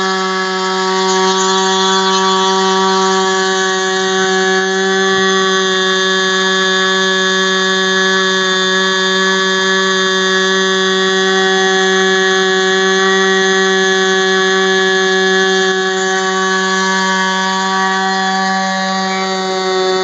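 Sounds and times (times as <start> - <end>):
model aircraft engine buzzing: 0.0 - 20.0.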